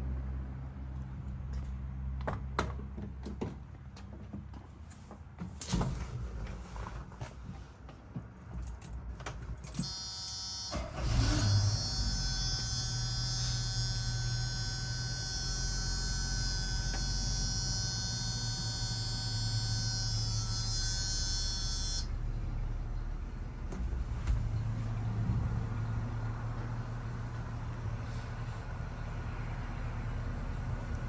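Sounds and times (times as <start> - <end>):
engine cranking and idling: 9.8 - 19.9, 21.0 - 31.0
high-pitched buzz: 9.8 - 22.1.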